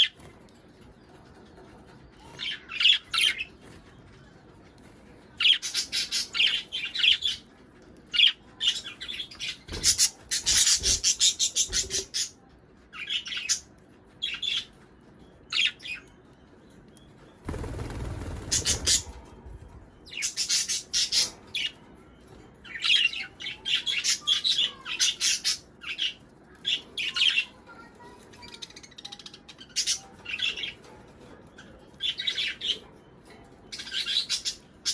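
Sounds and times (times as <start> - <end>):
budgerigars chirping: 17.5 - 19.2.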